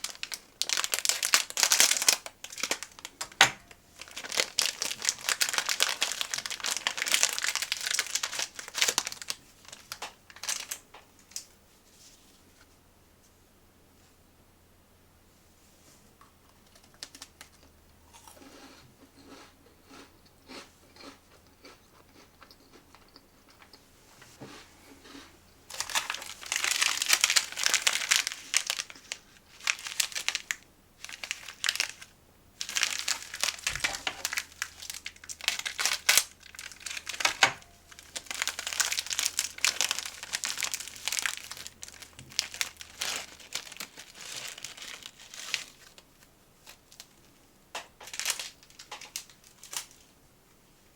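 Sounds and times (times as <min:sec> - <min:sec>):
snack packaging crinkling: 0:00.0 - 0:11.6, 0:16.4 - 0:23.8, 0:24.5 - 0:50.1.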